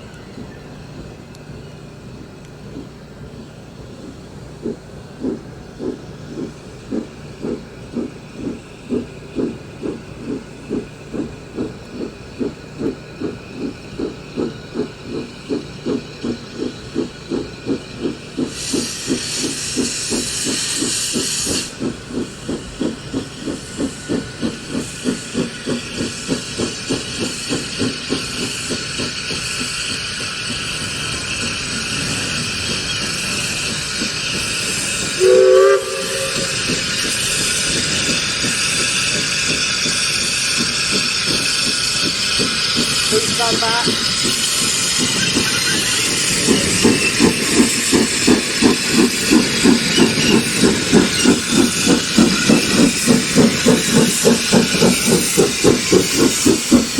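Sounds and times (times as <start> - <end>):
steam locomotive exhaust beating: 0.0 - 56.9
steam hiss: 2.2 - 56.9
steam whistle blast: 35.2 - 37.0.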